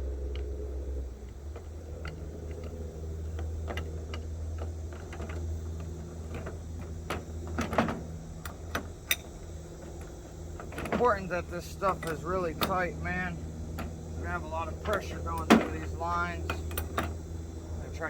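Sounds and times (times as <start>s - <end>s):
steady low hum: 0.0s - 18.0s
metal tools clicking and clinking: 7.1s - 12.9s, 13.7s - 17.2s.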